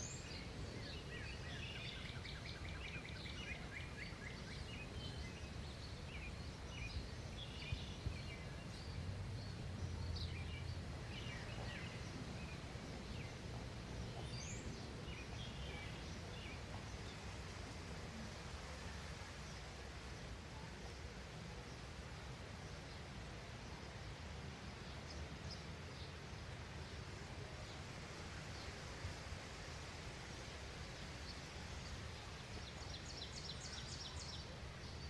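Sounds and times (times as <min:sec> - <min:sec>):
small birds chirping: 0:00.0 - 0:17.3, 0:30.9 - 0:35.0
low background rumble: 0:04.8 - 0:16.0.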